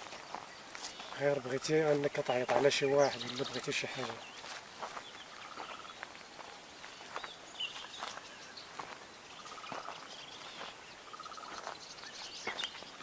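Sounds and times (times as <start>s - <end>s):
bird chirps: 0.0s - 13.0s
rapid bird trill: 9.3s - 13.0s.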